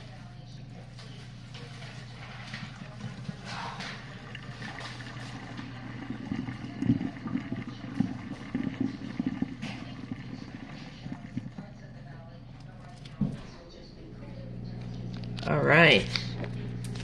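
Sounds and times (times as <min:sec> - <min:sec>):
drain pump humming: 0:00.0 - 0:17.0
water gurgling: 0:01.9 - 0:12.8.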